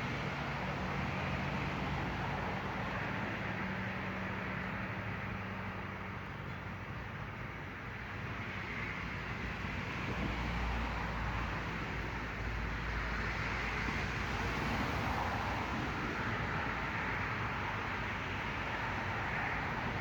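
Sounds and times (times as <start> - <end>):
traffic noise: 0.0 - 20.0.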